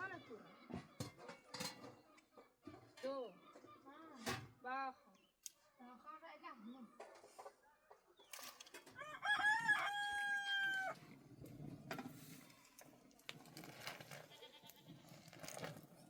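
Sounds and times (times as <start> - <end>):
rooster crowing: 8.9 - 11.0.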